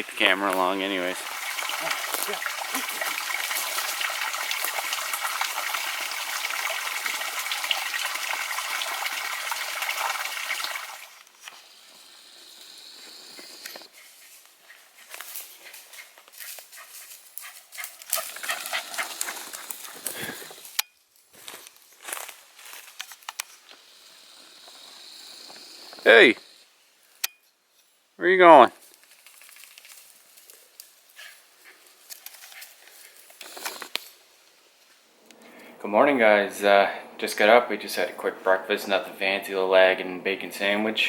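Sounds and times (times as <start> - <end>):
water rushing: 0.7 - 11.2
dog moving about: 13.9 - 20.4.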